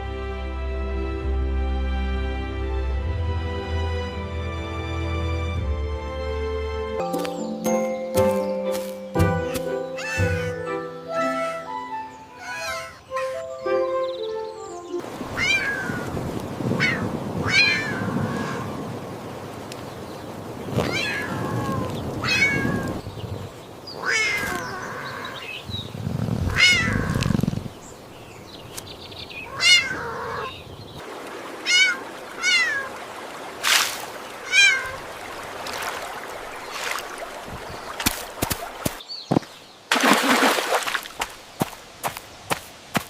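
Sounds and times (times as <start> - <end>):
cats meowing: 10.0 - 10.6, 12.4 - 13.4, 15.3 - 16.1, 16.8 - 18.7, 20.8 - 23.0, 24.0 - 25.3, 26.5 - 27.4, 29.5 - 30.5, 31.6 - 32.9, 34.4 - 35.0.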